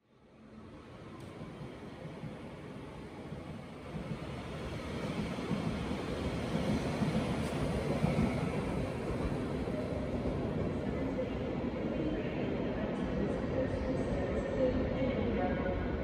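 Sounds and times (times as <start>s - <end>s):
train wheels rumbling on rails: 1.2s - 10.1s.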